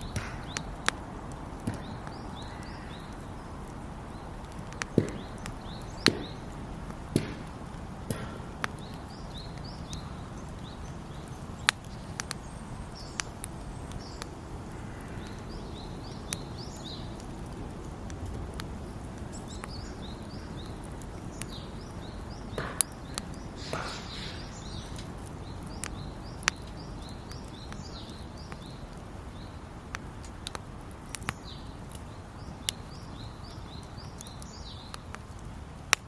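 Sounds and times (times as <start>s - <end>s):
sharp fire pops: 0.0s - 36.0s
wood fire crackling: 0.0s - 36.0s
bird chirping: 1.6s - 7.5s, 8.1s - 17.3s, 18.8s - 29.7s.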